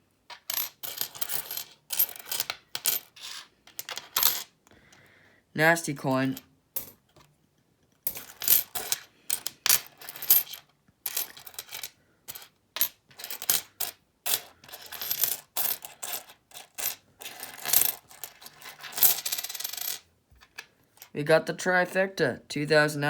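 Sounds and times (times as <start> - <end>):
coins clinking: 0.3 - 4.5, 6.2 - 7.0, 8.1 - 20.0.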